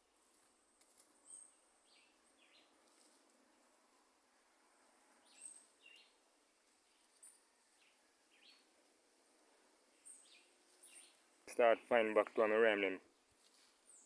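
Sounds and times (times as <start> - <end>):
faint outdoor ambience: 0.0 - 14.0
soft bird chirps: 0.7 - 2.8, 5.2 - 6.2, 9.9 - 11.2.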